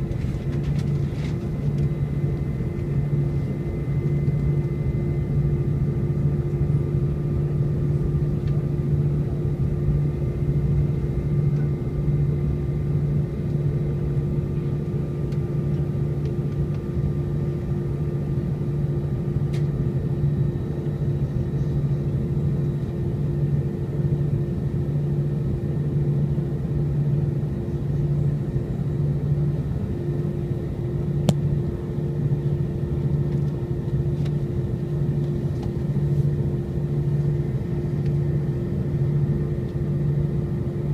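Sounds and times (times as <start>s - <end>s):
airplane cabin drone: 0.0s - 40.9s.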